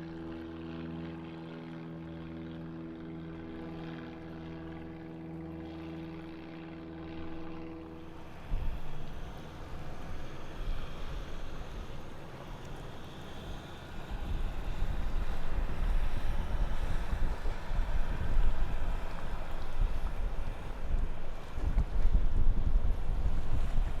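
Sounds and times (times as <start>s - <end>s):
wind buffeting microphone: 14.0s - 24.0s.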